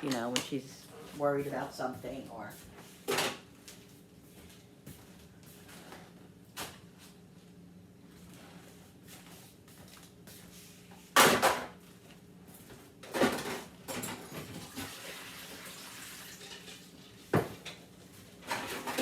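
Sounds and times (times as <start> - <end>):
kitchenware clattering: 13.1 - 15.0, 16.2 - 17.7.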